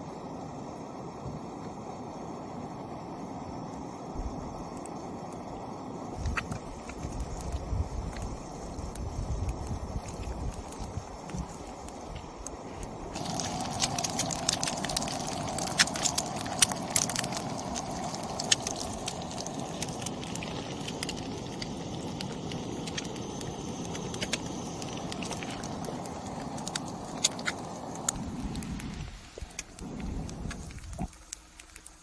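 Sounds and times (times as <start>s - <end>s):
egg sizzling in a pan: 0.0s - 32.0s.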